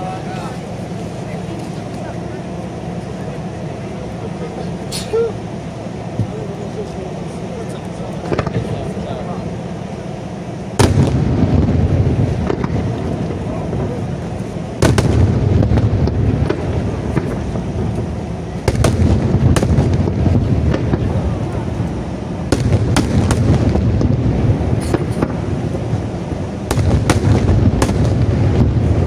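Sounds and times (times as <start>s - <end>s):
deep rumble of booms: 0.0s - 29.0s
firework shells bursting: 10.7s - 29.0s.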